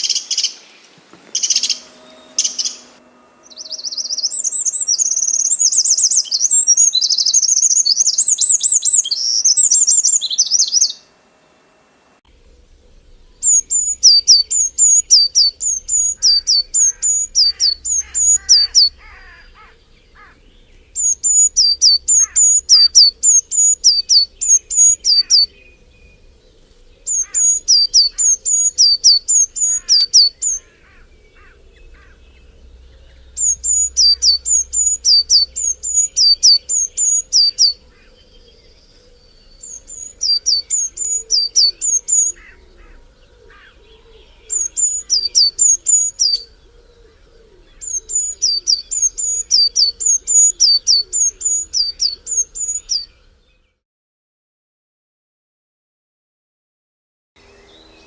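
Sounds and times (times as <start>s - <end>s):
songbird singing repeated high notes: 0.0s - 11.1s, 12.7s - 43.0s, 43.8s - 46.6s, 47.8s - 53.6s
faint calls of other birds: 0.0s - 11.2s, 12.3s - 53.8s.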